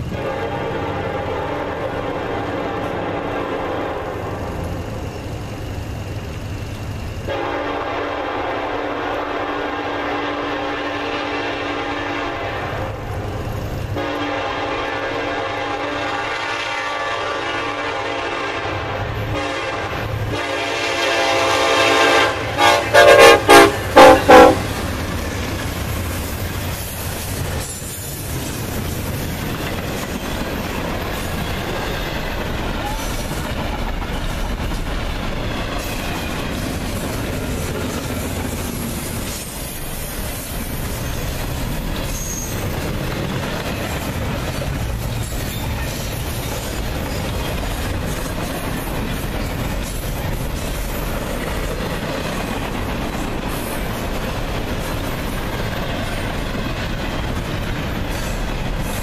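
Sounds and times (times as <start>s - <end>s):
locomotive air horn blasts: 0.1s - 4.3s, 7.3s - 12.9s, 14.0s - 24.8s
wheels clattering on rail: 17.6s - 59.0s.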